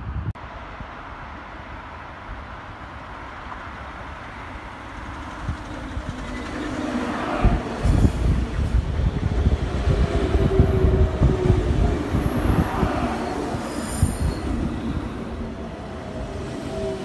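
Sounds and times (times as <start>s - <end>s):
train wheels rumbling: 4.0s - 17.0s
wheels squealing on rails: 4.5s - 17.0s.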